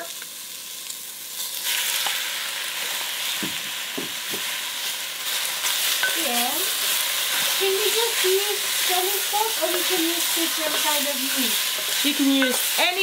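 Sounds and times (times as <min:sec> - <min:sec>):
frying sizzle: 0:00.0 - 0:13.0
wooden spoon knocking: 0:11.8 - 0:12.8.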